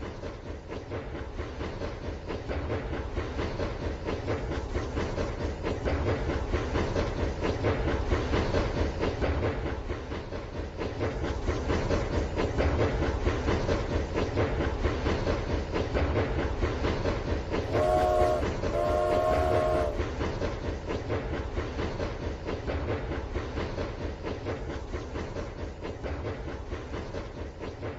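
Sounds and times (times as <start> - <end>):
toy train whistle toots: 17.7 - 20.1.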